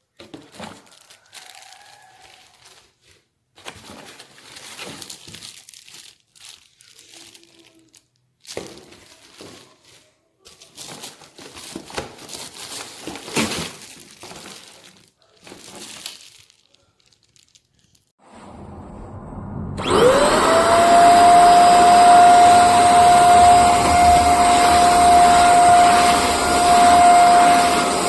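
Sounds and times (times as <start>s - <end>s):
packaging crinkling: 0.1s - 18.1s.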